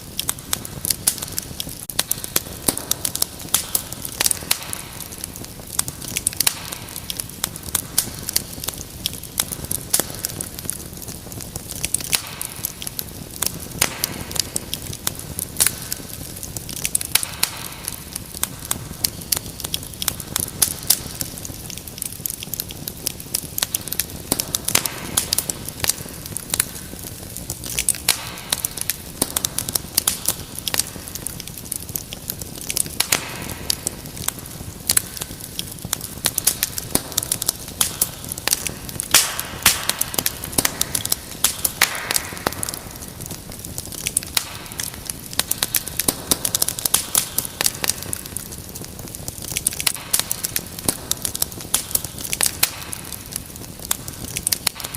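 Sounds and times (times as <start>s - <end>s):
hiss and rumble of burning logs: 0.0s - 54.9s
wood fire crackling and popping: 0.0s - 54.9s.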